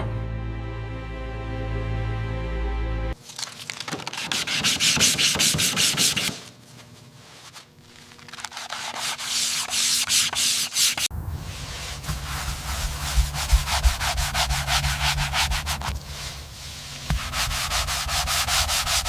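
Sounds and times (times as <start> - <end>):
hand sanding strokes: 4.2 - 6.5, 8.3 - 19.0.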